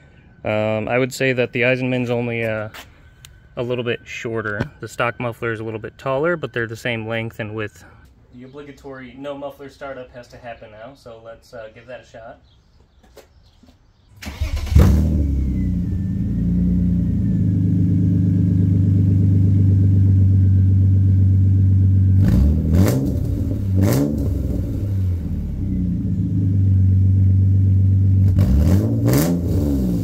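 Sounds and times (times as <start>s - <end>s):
car engine starting and idling: 14.2s - 30.0s
engine throttle blips: 14.2s - 30.0s.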